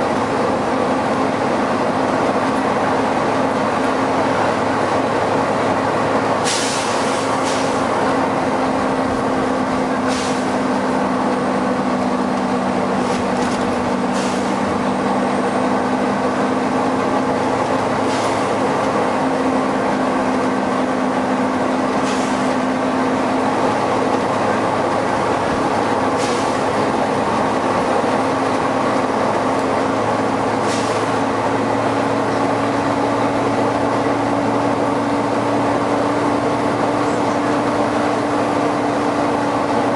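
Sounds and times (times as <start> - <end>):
bus engine and cooling fan running: 0.0 - 39.9
short sharp hisses: 6.4 - 7.8, 10.0 - 10.6, 14.1 - 14.6, 30.6 - 31.1.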